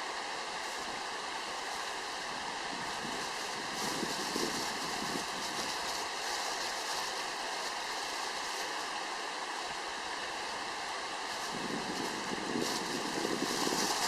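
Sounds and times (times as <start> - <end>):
stream running over rocks: 0.0 - 14.0.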